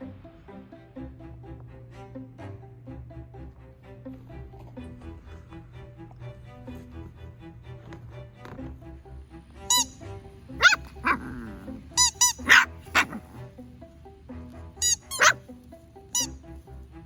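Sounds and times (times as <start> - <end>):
background music: 0.0 - 17.0
puppy barking high-pitched yaps: 10.6 - 13.4, 14.8 - 15.4.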